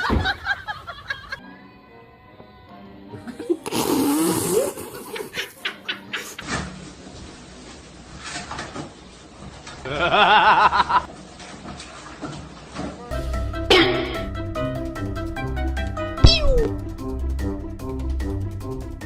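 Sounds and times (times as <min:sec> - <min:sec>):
person laughing: 0:04.7 - 0:06.4, 0:09.9 - 0:11.1.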